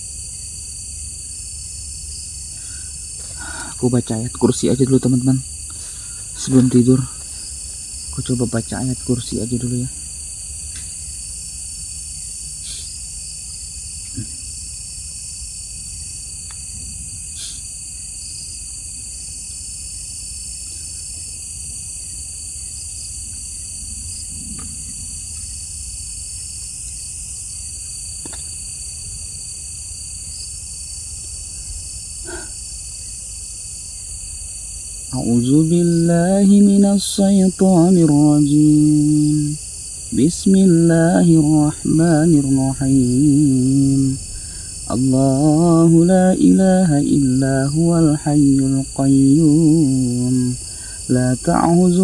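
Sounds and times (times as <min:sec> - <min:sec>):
night insects trilling: 0:00.0 - 0:52.0
faint ticks: 0:10.6 - 0:11.3, 0:16.4 - 0:17.7, 0:24.3 - 0:25.5, 0:28.2 - 0:28.6.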